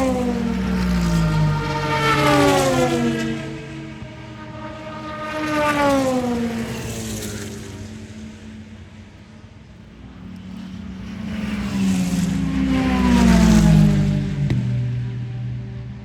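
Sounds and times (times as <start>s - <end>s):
race cars passing at speed: 0.0s - 16.0s.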